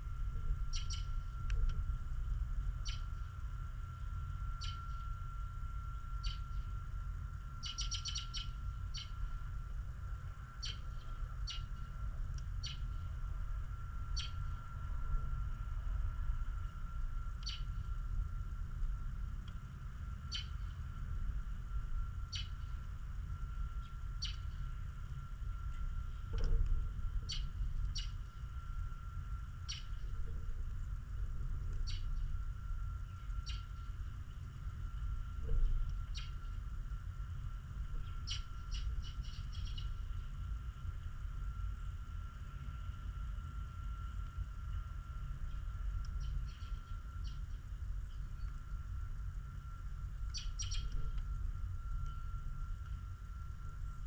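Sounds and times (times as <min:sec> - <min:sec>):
faint steady hum: 0:00.0 - 0:54.0
steady low rumble: 0:00.0 - 0:54.0
small bird chirping: 0:00.7 - 0:01.2, 0:02.8 - 0:03.3, 0:04.6 - 0:05.0, 0:06.2 - 0:06.7, 0:07.6 - 0:09.3, 0:10.6 - 0:11.9, 0:12.6 - 0:13.0, 0:14.1 - 0:14.5, 0:17.4 - 0:17.8, 0:20.3 - 0:20.7, 0:22.3 - 0:22.8, 0:23.8 - 0:24.6, 0:27.2 - 0:28.3, 0:29.6 - 0:30.0, 0:31.8 - 0:32.2, 0:33.0 - 0:34.4, 0:36.1 - 0:36.6, 0:38.0 - 0:40.0, 0:45.5 - 0:48.6, 0:50.3 - 0:51.0.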